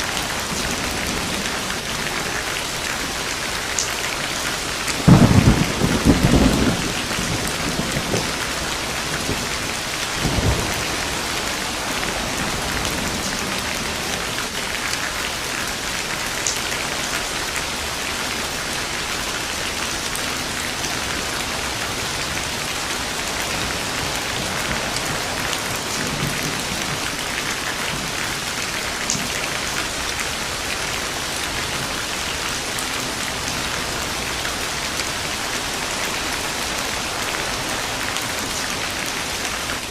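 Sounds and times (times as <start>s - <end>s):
steady rain falling: 0.0s - 39.9s
thunder rolling: 5.0s - 14.2s.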